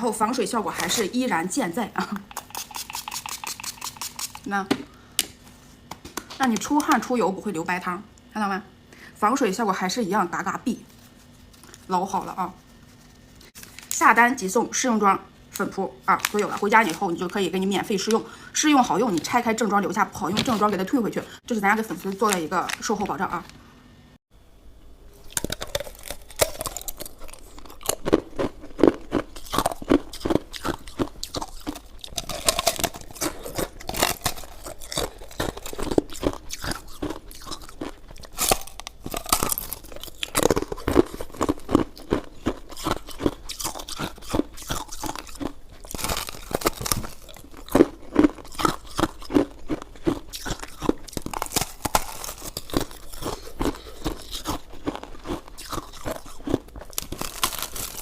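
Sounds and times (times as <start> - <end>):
person biting and chewing: 2.3 - 4.5, 25.1 - 58.0.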